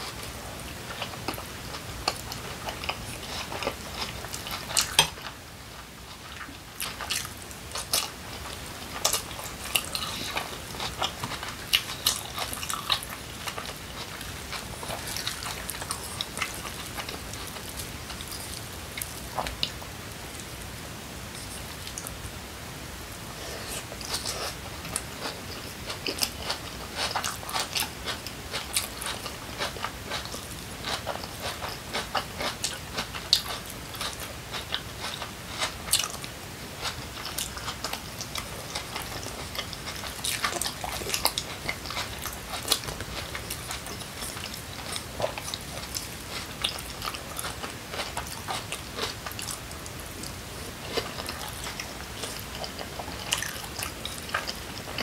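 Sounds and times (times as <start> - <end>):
person chewing with crunches: 0.0 - 20.7, 23.2 - 55.0.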